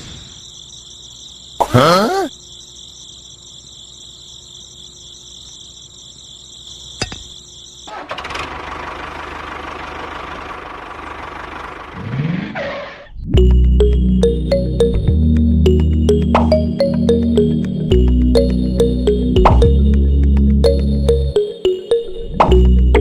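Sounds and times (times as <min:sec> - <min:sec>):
insect chirring: 0:00.0 - 0:08.0
loud music: 0:13.4 - 0:23.0.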